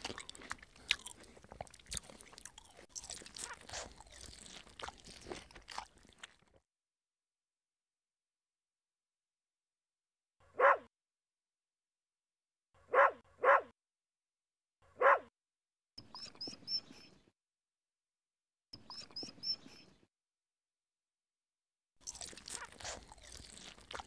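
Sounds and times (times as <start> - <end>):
small dog barking: 10.5 - 10.9, 12.9 - 13.8, 15.0 - 15.3.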